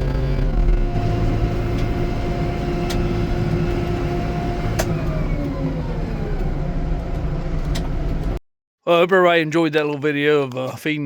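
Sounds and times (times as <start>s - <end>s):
vehicle engine rumbling: 0.0s - 8.4s.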